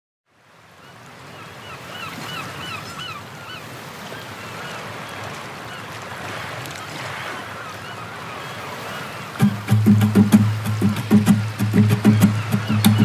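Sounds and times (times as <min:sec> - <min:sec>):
surf washing: 0:00.4 - 0:13.0
honking bird calls: 0:07.1 - 0:13.0.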